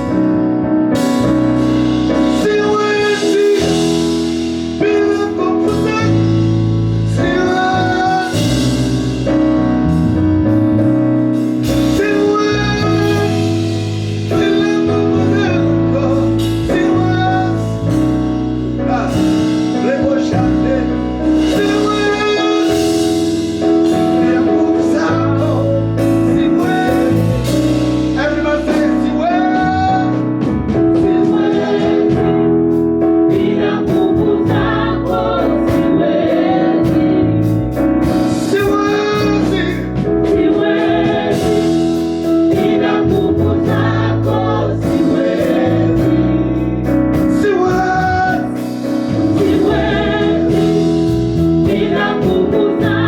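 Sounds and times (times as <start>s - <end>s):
bass line: 0.0s - 53.0s
keyboard chords: 0.0s - 53.0s
gospel choir singing: 1.0s - 53.0s.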